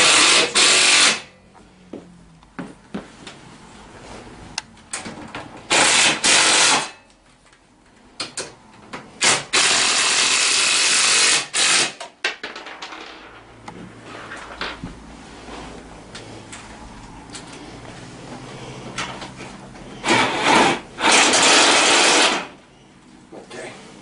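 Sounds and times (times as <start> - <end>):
power tool running: 0.0 - 1.3, 5.7 - 6.9, 9.2 - 12.0, 20.0 - 22.6.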